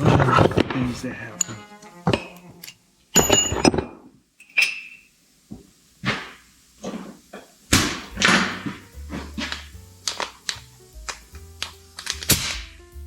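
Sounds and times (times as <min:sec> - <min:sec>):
metal tools clinking on steel: 0:02.6 - 0:05.0.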